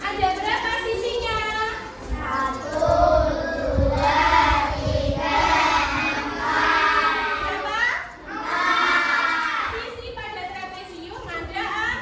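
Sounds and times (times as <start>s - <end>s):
children singing in chorus: 2.0s - 7.6s, 8.2s - 9.7s.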